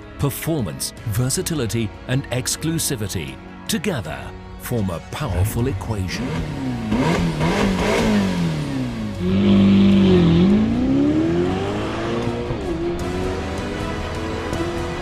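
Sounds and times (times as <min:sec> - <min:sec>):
car engine revving and accelerating: 0:06.1 - 0:15.0.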